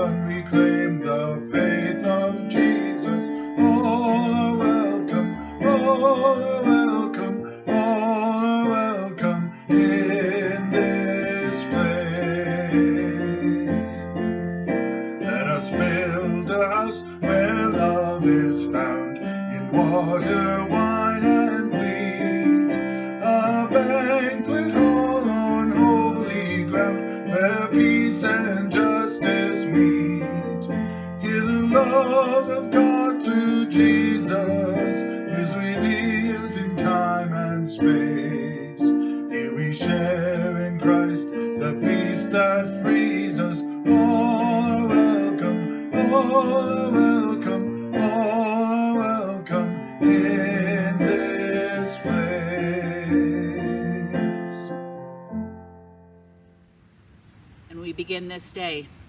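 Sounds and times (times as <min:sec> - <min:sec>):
hymn with guitar and piano: 0:00.0 - 0:56.0.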